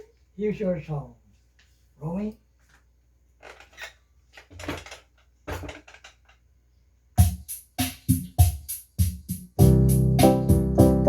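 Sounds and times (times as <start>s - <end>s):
drum machine hits: 7.2s - 11.0s
electronic keyboard music: 9.5s - 11.0s.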